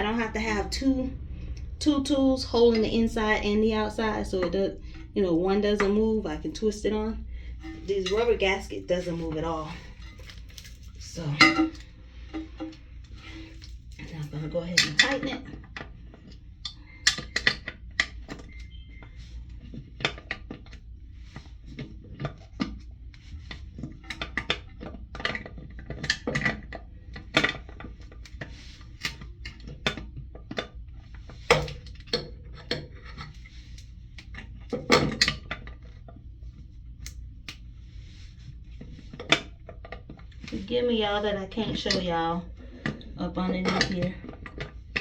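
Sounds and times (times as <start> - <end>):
plastic and porcelain clicks and knocks: 17.0 - 18.4.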